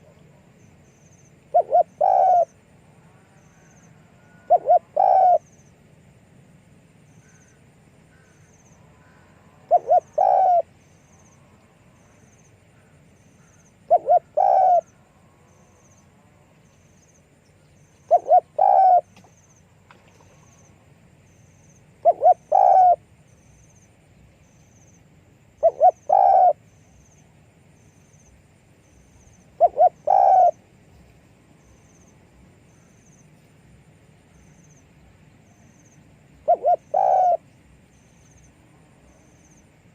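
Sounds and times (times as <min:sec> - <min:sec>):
dove cooing: 0:01.5 - 0:05.5, 0:09.0 - 0:10.7, 0:13.8 - 0:15.0, 0:18.0 - 0:19.3, 0:22.0 - 0:23.0, 0:25.6 - 0:26.6, 0:29.6 - 0:30.6, 0:36.4 - 0:37.5.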